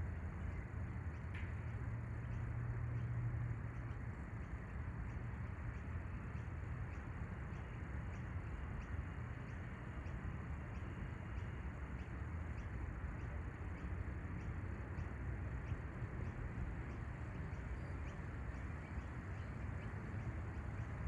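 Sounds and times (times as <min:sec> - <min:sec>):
faint high ticks: 0:00.1 - 0:21.0.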